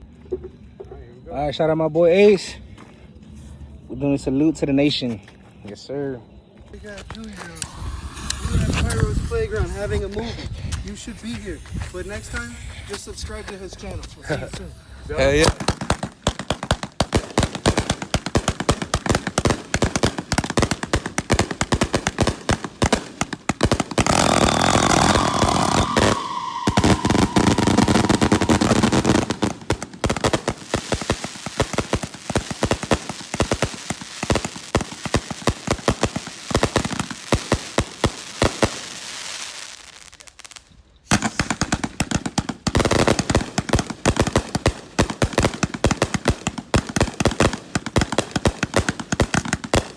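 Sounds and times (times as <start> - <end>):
fireworks bangs: 6.8 - 49.9
falling whistle: 7.4 - 15.0, 24.1 - 29.6.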